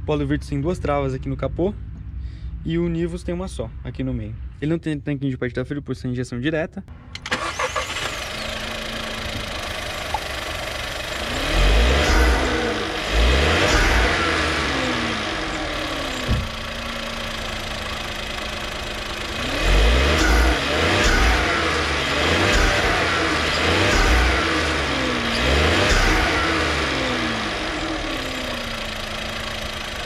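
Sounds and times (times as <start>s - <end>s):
car engine idling and revving: 6.9s - 30.0s.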